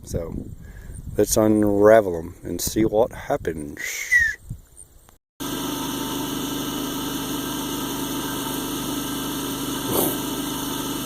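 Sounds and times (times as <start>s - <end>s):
generator engine running: 5.4s - 11.0s.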